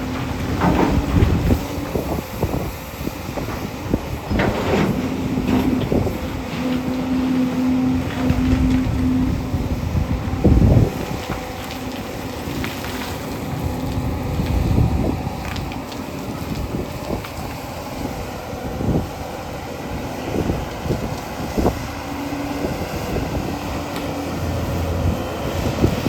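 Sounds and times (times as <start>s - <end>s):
excavator diesel engine running: 0.0s - 26.0s
steel bucket scraping on stone: 4.3s - 9.6s.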